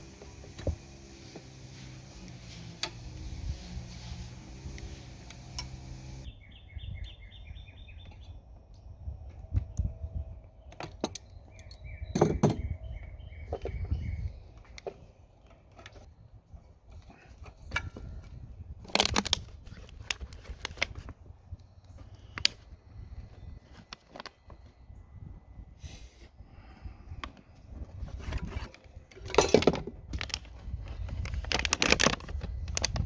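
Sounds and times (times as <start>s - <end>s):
birds chirping: 0.0s - 8.9s, 10.5s - 16.3s.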